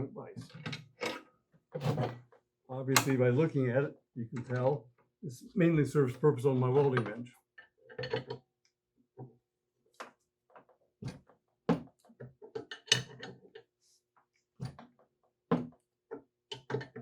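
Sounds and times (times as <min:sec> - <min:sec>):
hand tools knocking on metal: 0:03.0 - 0:03.2.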